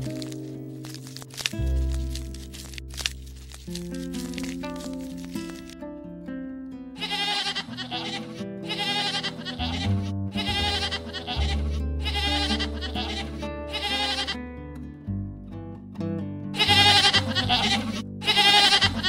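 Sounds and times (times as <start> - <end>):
background music: 0.0 - 14.7, 16.6 - 19.0
young goats bleating: 7.0 - 14.4, 16.6 - 19.0.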